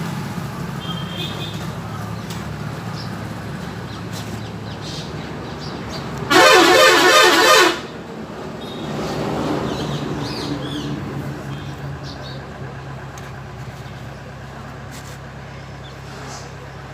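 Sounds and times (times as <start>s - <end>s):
vehicle horn blast: 0.8s - 1.6s, 6.3s - 8.0s.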